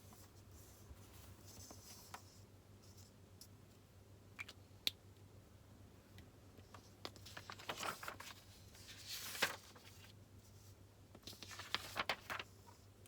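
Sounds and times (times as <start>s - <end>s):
faint steady hum: 0.0s - 13.0s
paper rustling: 6.8s - 10.6s, 11.2s - 12.9s.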